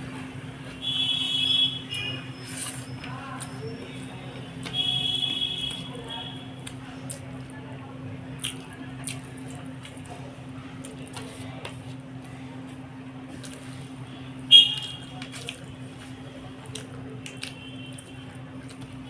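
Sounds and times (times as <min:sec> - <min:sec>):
wet squishing eating sounds: 0:05.6 - 0:19.0.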